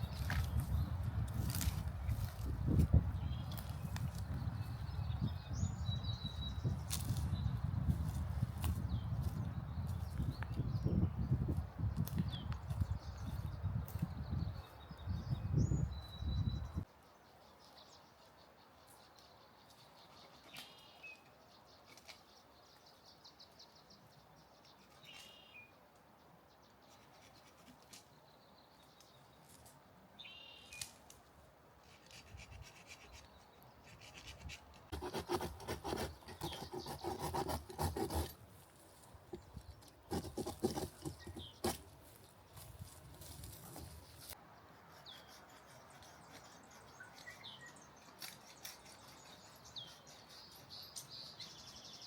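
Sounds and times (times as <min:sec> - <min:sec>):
close scraping and rustling: 0:31.8 - 0:44.4.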